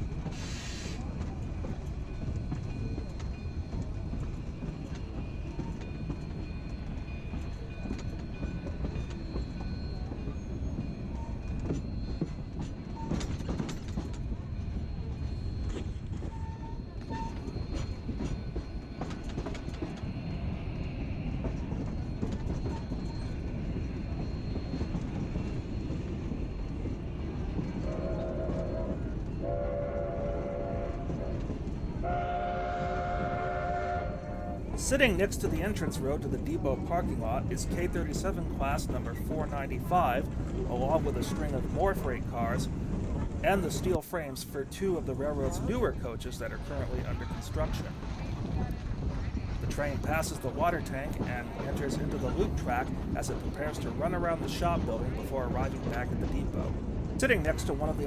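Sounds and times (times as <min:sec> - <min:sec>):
rattles from train cars: 0:00.0 - 0:29.4, 0:34.3 - 0:58.0
train rumbling on track: 0:00.0 - 0:58.0
steam whistle blasts: 0:32.0 - 0:34.3.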